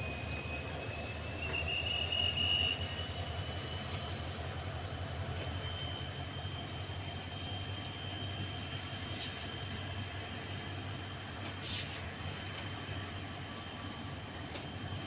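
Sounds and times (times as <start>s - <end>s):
high wheel squeal: 0.0s - 4.6s, 5.2s - 8.4s
train coaches rumbling: 0.0s - 15.0s.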